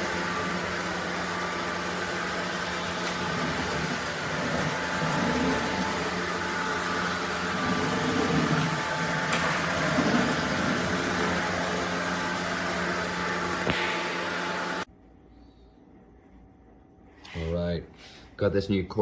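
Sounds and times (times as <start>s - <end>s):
vacuum cleaner motor whirring: 0.0s - 14.9s.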